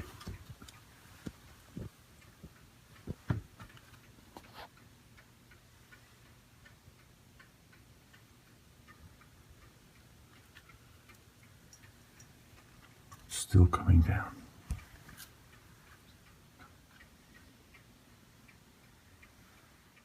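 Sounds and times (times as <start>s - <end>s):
clock ticking: 0.0s - 20.0s
knocks: 3.1s - 3.6s.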